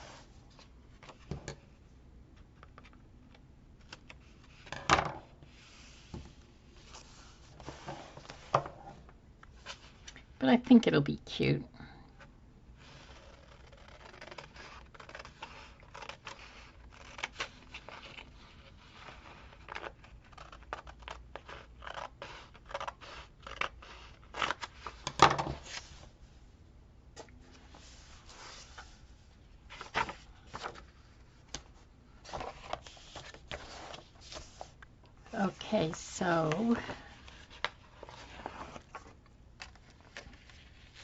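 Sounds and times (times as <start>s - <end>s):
paper scraping and rustling: 12.8s - 26.1s, 27.5s - 31.6s, 32.2s - 34.8s, 35.5s - 41.0s.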